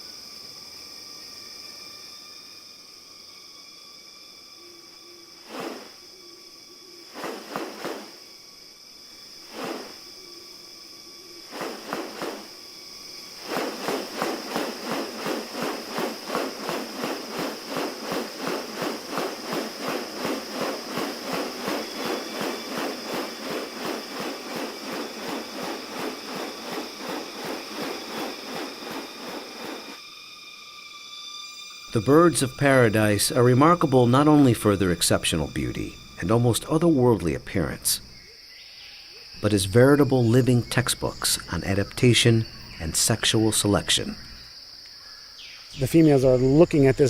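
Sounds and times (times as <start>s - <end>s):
insects high-pitched tones: 0.0s - 47.0s
fast even pulsing strokes: 5.4s - 6.0s, 7.1s - 8.3s, 9.4s - 10.1s, 11.4s - 12.6s, 13.2s - 30.0s.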